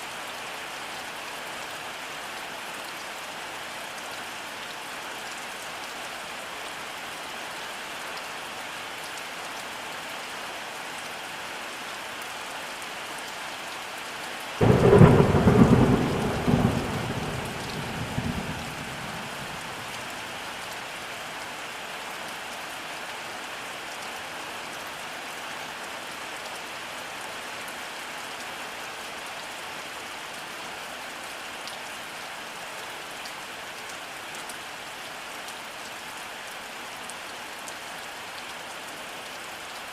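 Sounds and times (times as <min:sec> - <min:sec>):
steady rainfall: 0:00.0 - 0:39.9
thunder crack and rumbling: 0:14.6 - 0:20.1.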